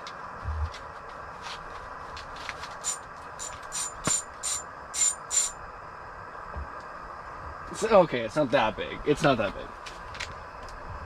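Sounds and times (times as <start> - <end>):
fishing reel clicking: 2.8 - 5.6.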